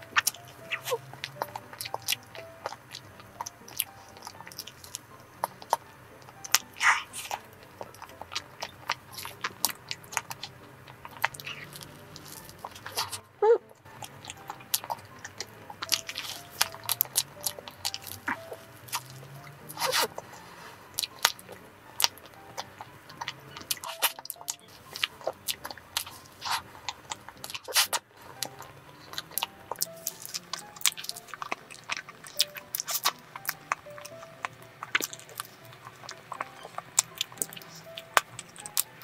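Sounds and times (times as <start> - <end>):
person chewing soft food: 0.0 - 39.0
wet mouth smacks and clicks: 21.0 - 39.0.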